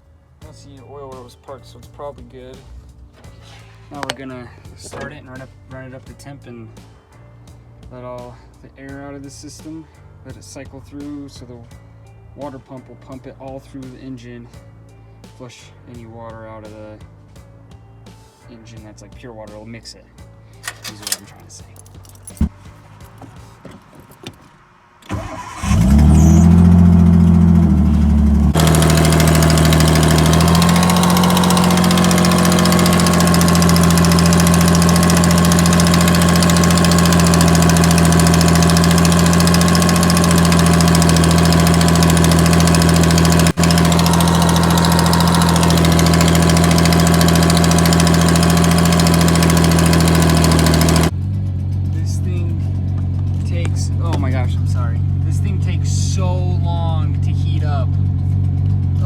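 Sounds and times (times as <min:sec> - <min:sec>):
car engine starting: 0:02.9 - 0:05.5, 0:20.6 - 0:59.0
car engine idling: 0:03.9 - 0:05.4, 0:25.1 - 0:59.0.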